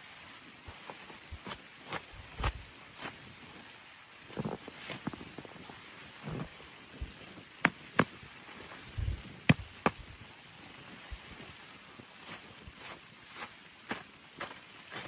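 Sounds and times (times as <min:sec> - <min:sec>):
faint steady hiss: 0:00.0 - 0:15.0
soft low thumps: 0:08.9 - 0:10.2.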